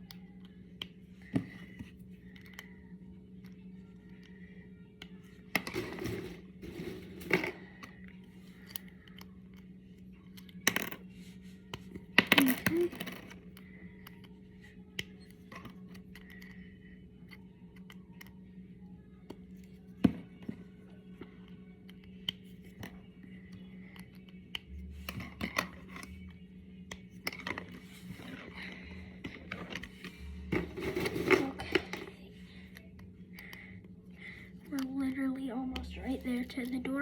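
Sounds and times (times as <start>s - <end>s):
steady low hum: 0.0s - 37.0s
plastic scraping: 27.5s - 32.1s.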